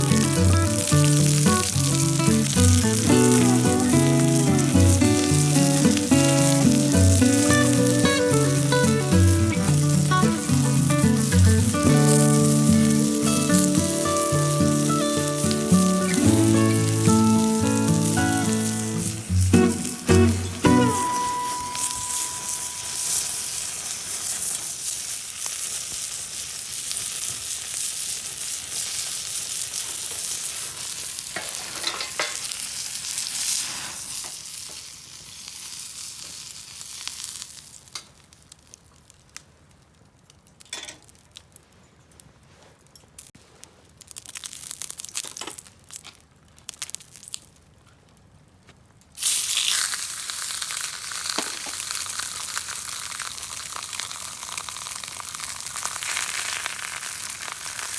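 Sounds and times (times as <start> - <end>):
food sizzling in a frying pan: 0.0 - 38.1, 49.2 - 57.9.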